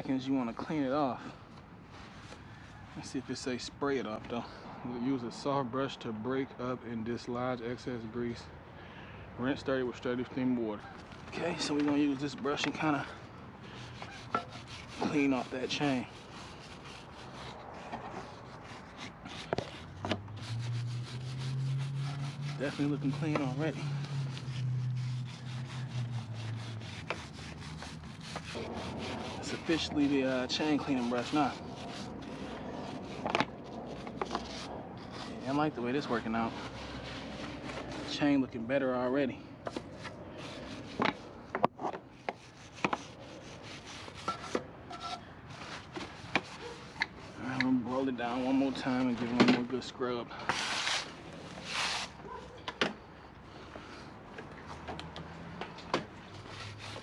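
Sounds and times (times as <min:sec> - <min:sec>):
brush scrubbing a chain: 0:11.4 - 0:38.2, 0:42.3 - 0:49.2, 0:56.4 - 0:57.0.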